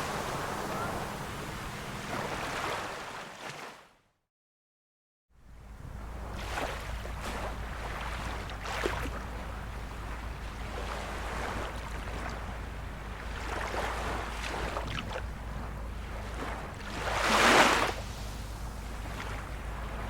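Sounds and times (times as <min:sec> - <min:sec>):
small waves lapping: 0:00.0 - 0:03.9, 0:05.5 - 0:20.0
low even rumble: 0:05.4 - 0:20.0.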